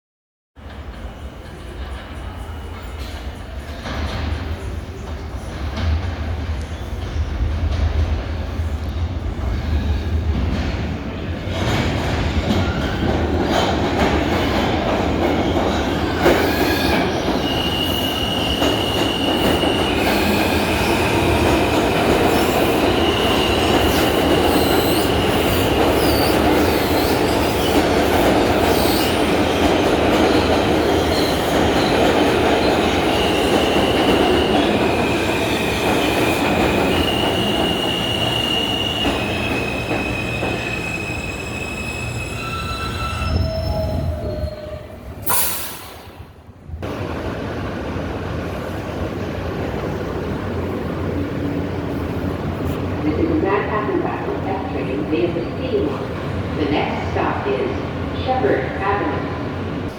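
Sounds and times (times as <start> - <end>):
subway train wheels rumbling on rail: 0.6 - 59.9
high-pitched wheel squeal: 37.0 - 45.4.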